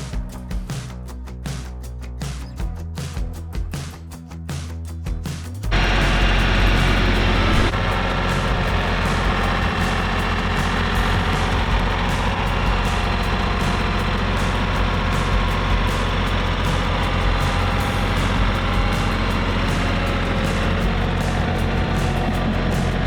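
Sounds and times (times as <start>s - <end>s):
tractor engine running: 5.7s - 23.0s.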